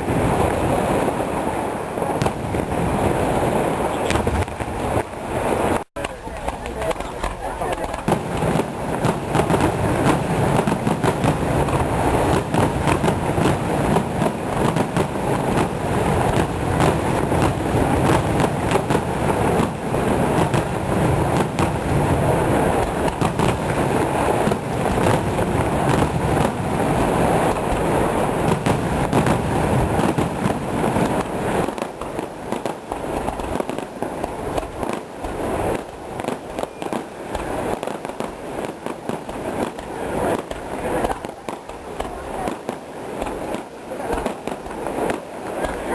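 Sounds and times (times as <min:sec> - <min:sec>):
fireworks bangs and crackle: 0:00.0 - 0:45.9.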